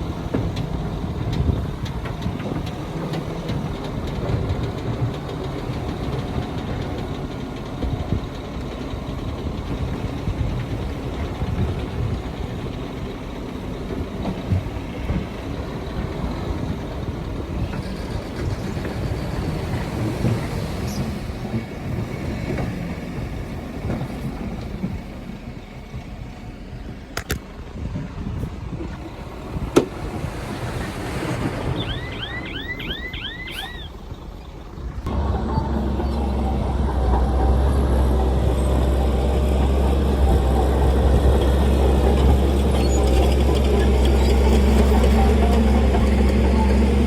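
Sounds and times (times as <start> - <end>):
heavy diesel machinery rumbling: 0.0 - 47.0.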